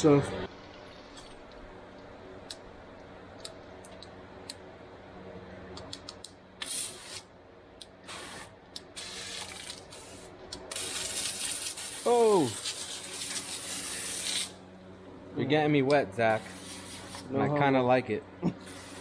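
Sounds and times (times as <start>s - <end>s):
liquid cleaner spray hissing: 10.8s - 14.6s, 16.3s - 17.3s, 18.6s - 19.0s.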